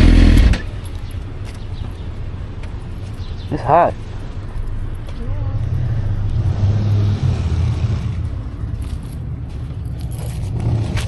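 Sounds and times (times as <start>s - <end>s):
motorcycle engine rumbling: 0.0s - 1.3s, 4.7s - 11.0s
wind and road noise: 0.0s - 11.0s.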